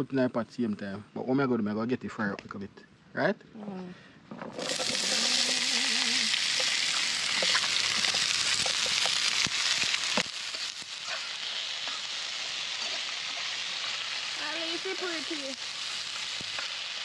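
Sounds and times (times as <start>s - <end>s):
vegetables sizzling in oil: 4.5s - 17.0s
metal utensil clicking on pan: 6.5s - 11.3s.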